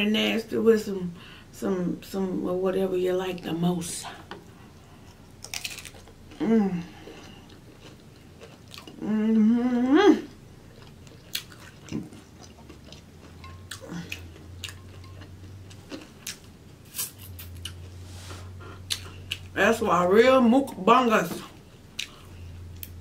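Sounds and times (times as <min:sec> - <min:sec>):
person humming mmm: 0:06.3 - 0:07.4, 0:09.0 - 0:10.4
chewing and lip smacks: 0:07.2 - 0:09.0, 0:10.7 - 0:17.9, 0:18.8 - 0:19.6, 0:21.9 - 0:23.0.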